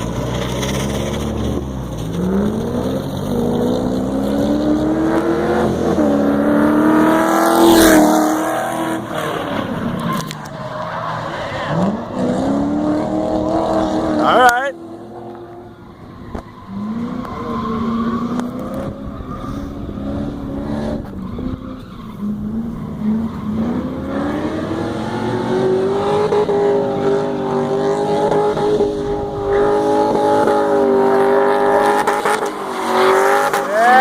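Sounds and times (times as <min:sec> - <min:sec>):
engine revving: 0:00.0 - 0:10.4, 0:11.7 - 0:15.2, 0:22.2 - 0:34.0
tyres skidding: 0:00.0 - 0:34.0.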